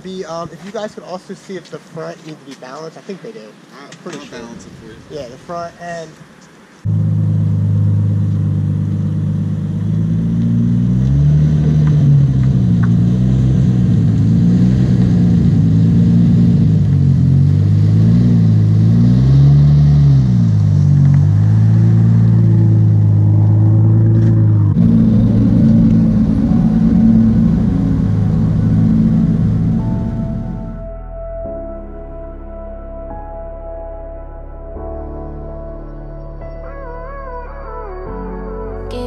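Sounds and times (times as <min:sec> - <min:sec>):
car engine revving: 0:06.8 - 0:31.0.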